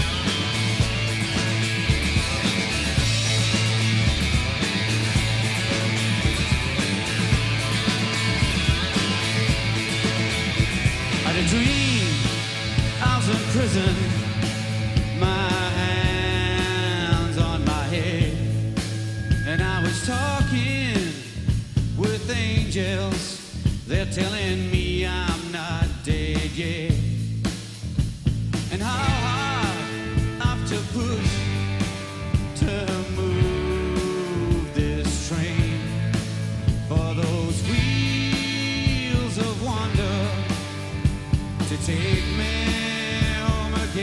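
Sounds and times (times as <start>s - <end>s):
live rock band playing: 0.0s - 44.0s.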